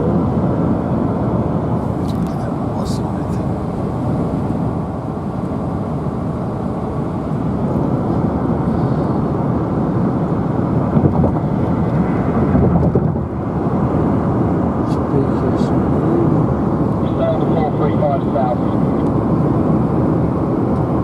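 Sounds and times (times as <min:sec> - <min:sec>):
car cabin road and engine noise: 0:00.0 - 0:21.0.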